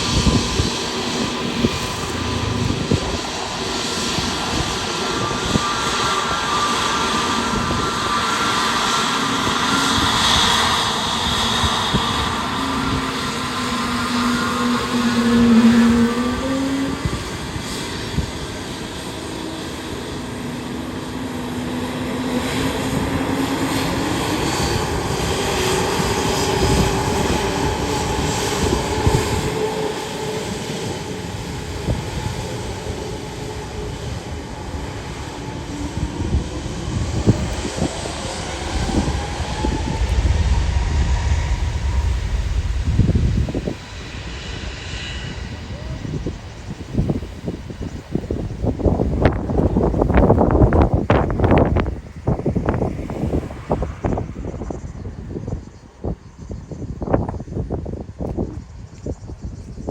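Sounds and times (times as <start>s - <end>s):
low rumble: 0.0s - 6.0s, 22.4s - 57.2s
airliner engines running: 0.0s - 59.9s.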